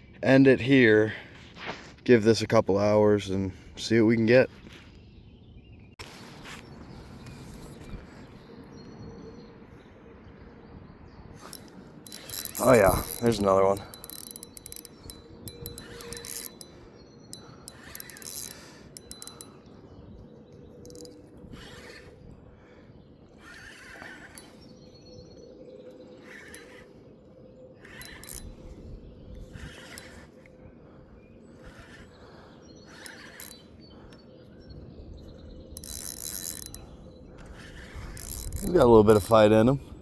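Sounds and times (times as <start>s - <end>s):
fishing reel being cranked: 11.4s - 19.6s, 20.8s - 22.1s, 23.4s - 24.7s, 26.2s - 27.0s, 27.8s - 28.8s, 29.4s - 30.4s, 31.6s - 33.7s, 35.8s - 39.6s.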